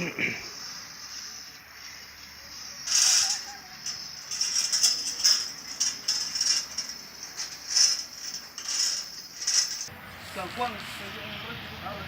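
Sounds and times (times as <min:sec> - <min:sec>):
metal chain rattling: 0:02.8 - 0:09.9.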